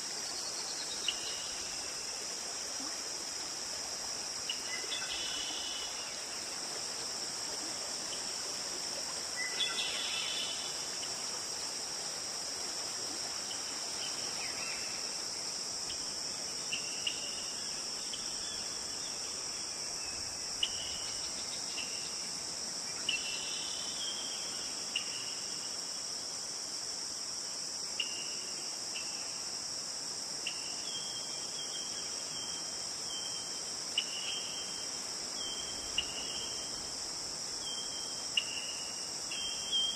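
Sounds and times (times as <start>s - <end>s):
forest stream rushing: 0.0s - 16.7s
crickets chirping: 0.0s - 39.9s.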